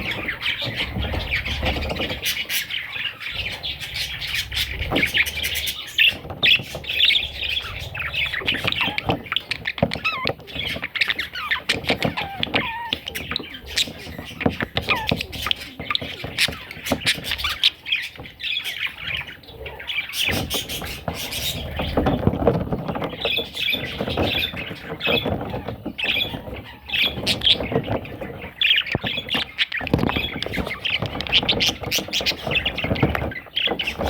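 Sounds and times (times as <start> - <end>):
budgerigar chattering and squawking: 0.0 - 22.2.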